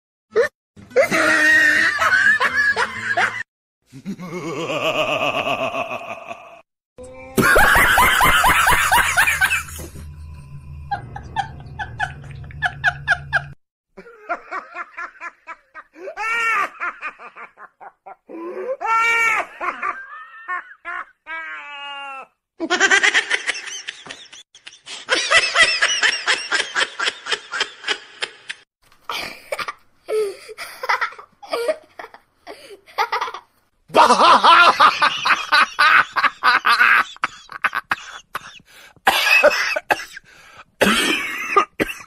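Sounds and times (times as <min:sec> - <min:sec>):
people laughing: 0:01.0 - 0:03.4, 0:04.0 - 0:06.6, 0:07.4 - 0:09.9, 0:10.9 - 0:18.2, 0:22.6 - 0:28.6, 0:33.9 - 0:38.6.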